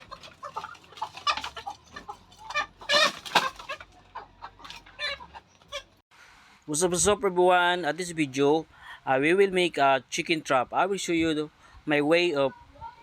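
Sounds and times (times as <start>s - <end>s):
chickens clucking: 0.0s - 6.0s.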